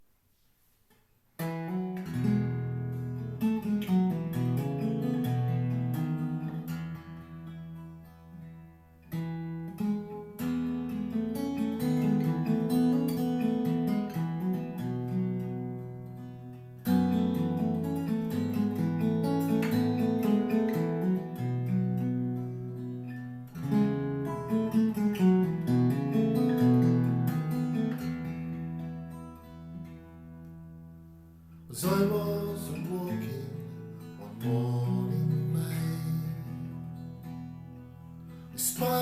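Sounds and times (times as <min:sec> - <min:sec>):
acoustic guitar playing: 0:00.3 - 0:39.0.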